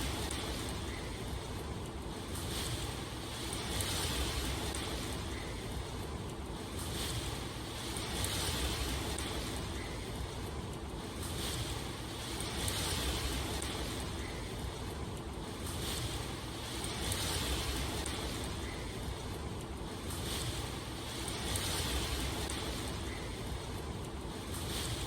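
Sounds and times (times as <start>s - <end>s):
rushing water: 2.1s - 5.9s, 11.0s - 25.0s.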